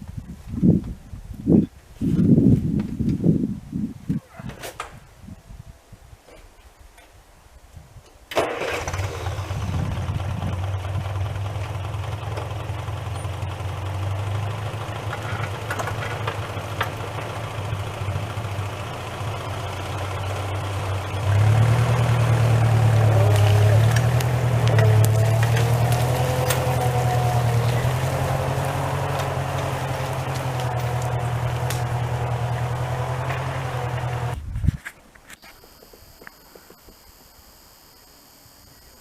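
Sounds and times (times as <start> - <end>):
engine humming: 8.3 - 39.0.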